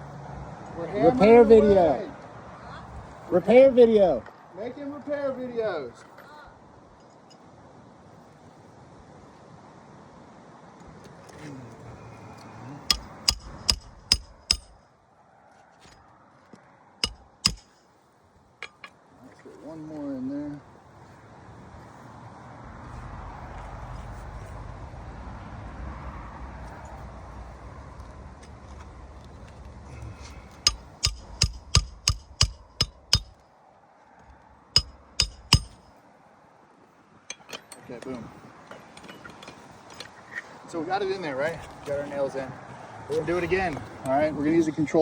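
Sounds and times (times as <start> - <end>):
hammer striking roofing nails: 12.9 - 14.8, 17.0 - 17.8, 30.7 - 33.4, 34.8 - 35.8.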